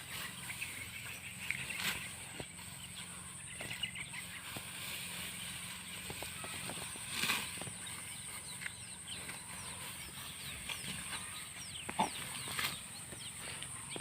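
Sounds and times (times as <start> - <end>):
falling bird chirps: 0.1 - 14.0.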